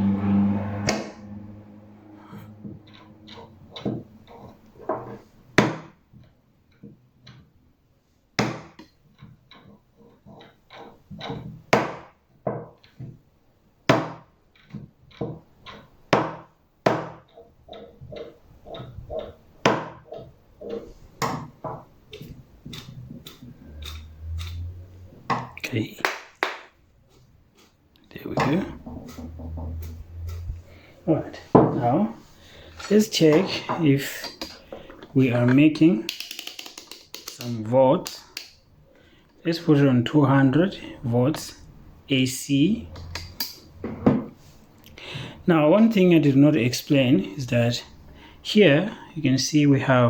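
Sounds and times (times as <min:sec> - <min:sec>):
parts clicking and knocking: 0:02.3 - 0:07.8, 0:08.4 - 0:39.4, 0:42.8 - 0:45.0.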